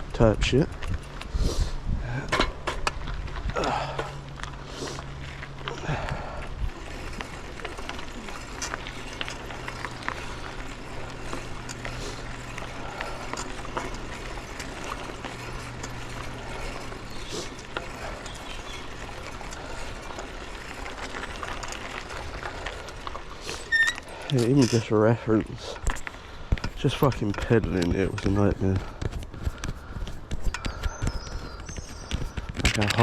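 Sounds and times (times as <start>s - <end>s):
bike rattling: 0.0s - 33.0s
bike freewheel ticking: 5.8s - 24.9s.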